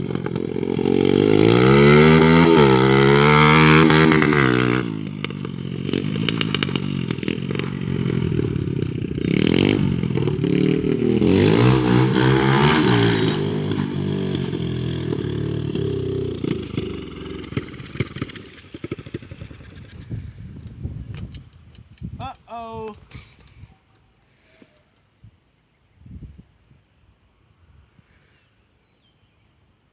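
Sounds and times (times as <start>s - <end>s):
motorbike engine revving and sputtering: 0.0s - 20.8s.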